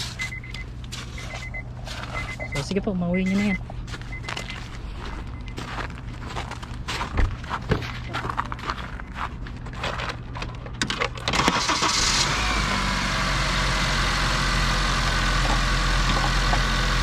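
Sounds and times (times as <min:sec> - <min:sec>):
car engine cranking: 0:10.5 - 0:17.0
car engine idling: 0:11.3 - 0:17.0.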